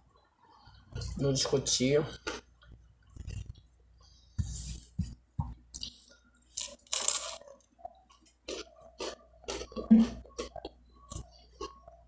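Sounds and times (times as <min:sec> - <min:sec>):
crunching and chewing bread: 0:02.2 - 0:03.8, 0:05.8 - 0:12.0.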